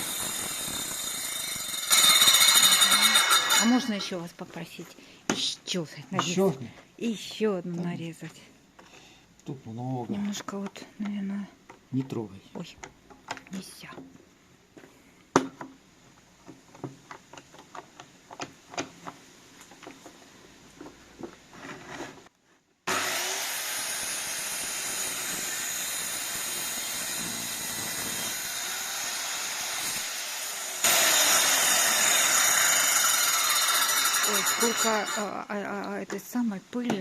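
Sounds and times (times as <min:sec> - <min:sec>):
electric saw cutting wood: 0:00.0 - 0:03.9, 0:22.9 - 0:35.3.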